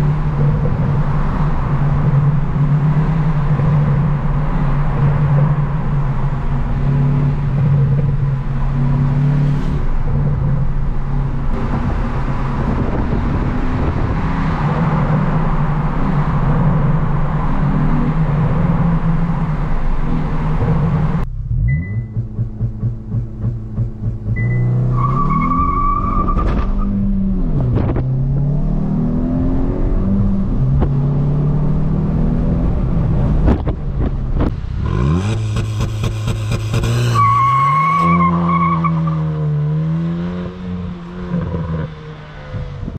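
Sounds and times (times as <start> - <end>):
car engine revving: 0.0 - 42.9
road noise: 0.0 - 42.9
high steady tone: 21.3 - 22.4.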